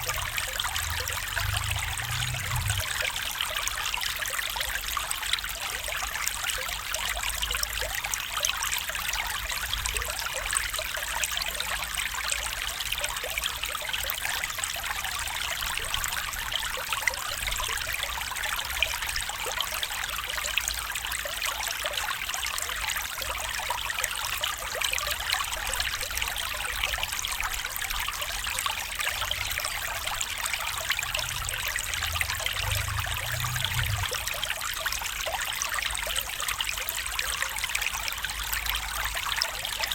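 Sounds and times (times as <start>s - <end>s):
low rumble: 0.0s - 3.1s, 30.0s - 34.4s
stream trickling: 0.0s - 39.9s.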